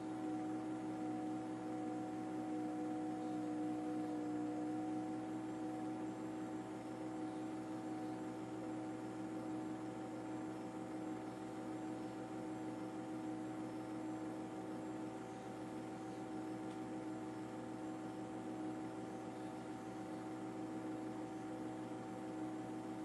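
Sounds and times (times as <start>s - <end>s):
steady machine drone: 0.0s - 8.6s.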